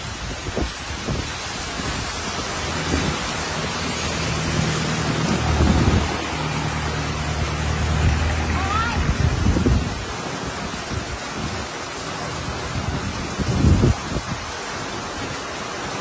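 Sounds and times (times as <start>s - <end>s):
heavy rain pouring: 0.0s - 16.0s
van engine hum: 2.0s - 10.4s.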